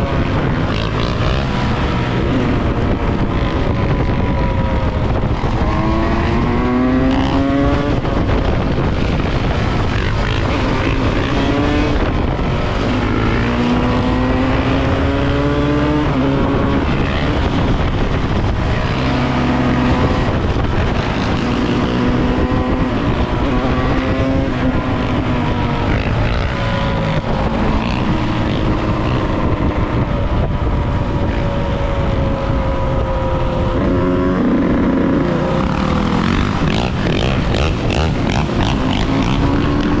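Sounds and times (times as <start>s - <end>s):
dirt bike engine revving: 0.0s - 8.1s, 9.7s - 29.8s, 33.7s - 40.0s
wind rumble on microphone: 0.0s - 40.0s.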